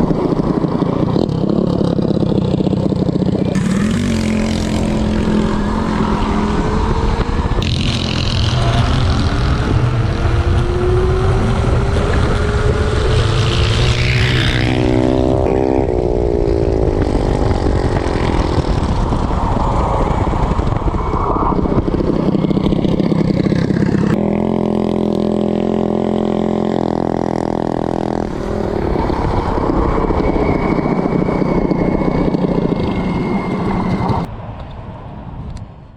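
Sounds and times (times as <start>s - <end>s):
minibike engine revving: 0.0s - 20.9s, 21.6s - 34.3s
wind noise: 0.0s - 35.9s.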